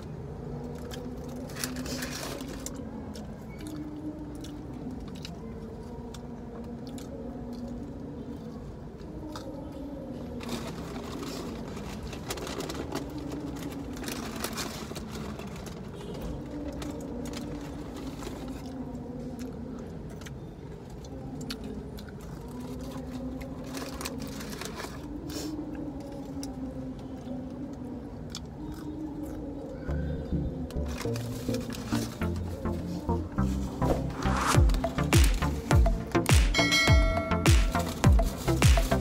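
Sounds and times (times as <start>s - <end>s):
chewing fried food: 0.0s - 36.2s
paper wrapper crackling: 0.7s - 2.9s, 10.3s - 18.8s, 22.5s - 25.2s, 30.7s - 36.3s, 37.7s - 39.0s.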